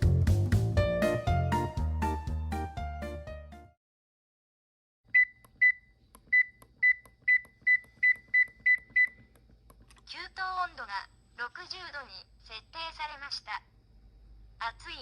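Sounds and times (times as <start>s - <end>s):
piano music: 0.0s - 3.8s
control panel beeps: 5.1s - 9.4s.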